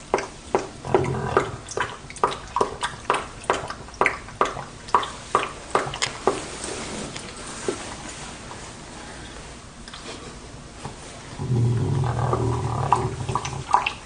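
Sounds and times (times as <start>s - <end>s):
wet smacking and lapping: 0.0s - 7.9s, 12.2s - 14.0s.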